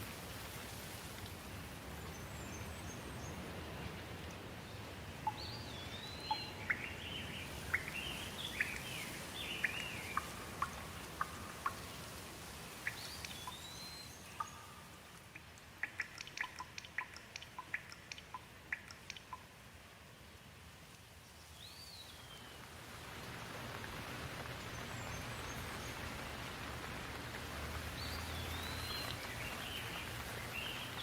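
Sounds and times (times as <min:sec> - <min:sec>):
steady rain: 0:00.0 - 0:31.0
water drips ticking: 0:05.2 - 0:19.7, 0:23.0 - 0:31.0.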